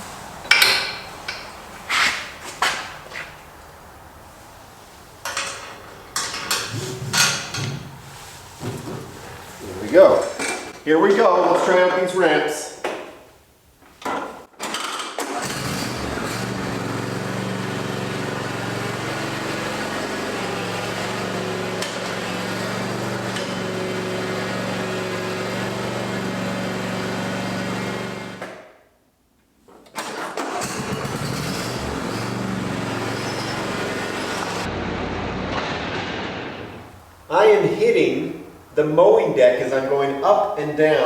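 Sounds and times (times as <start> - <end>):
lawn tractor engine running: 0.0 - 2.2, 15.2 - 28.4, 30.1 - 38.8.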